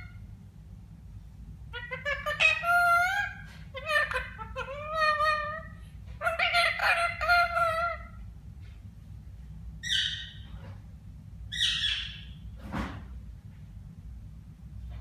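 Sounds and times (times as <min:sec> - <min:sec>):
parrot calling: 0:00.0 - 0:00.3, 0:01.7 - 0:08.3, 0:09.8 - 0:10.9, 0:11.5 - 0:12.5
parrot squawking: 0:01.7 - 0:08.2, 0:09.8 - 0:10.8, 0:11.5 - 0:12.4.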